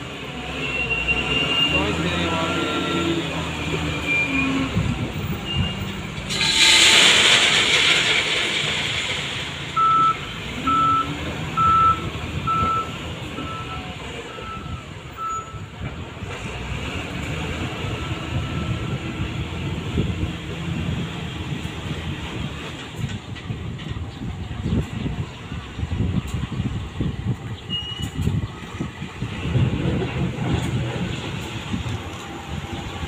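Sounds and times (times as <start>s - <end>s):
diesel locomotive rumbling: 0.0s - 33.0s
reversing warning beeps: 9.8s - 15.7s, 27.7s - 28.3s.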